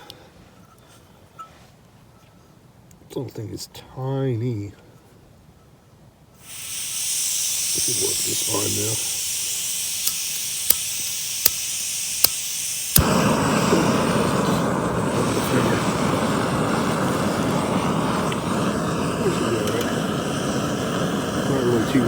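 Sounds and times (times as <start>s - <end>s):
camping stove hissing gas: 6.4s - 22.0s
gas flame whoosh and roar: 6.4s - 22.0s
stove igniter clicking: 6.4s - 22.0s.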